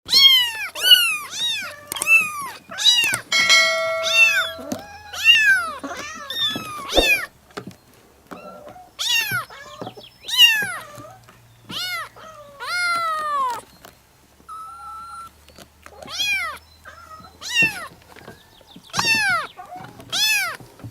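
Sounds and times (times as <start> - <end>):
brief steady tone: 3.3 - 5.0, 6.9 - 7.2.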